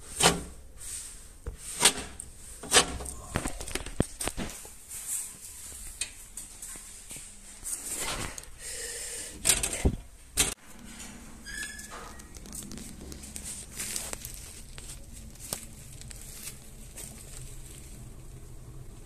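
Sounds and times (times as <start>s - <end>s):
wood fire rumbling: 1.8s - 4.6s, 9.4s - 19.0s
fire crackles and clicks: 12.1s - 19.0s.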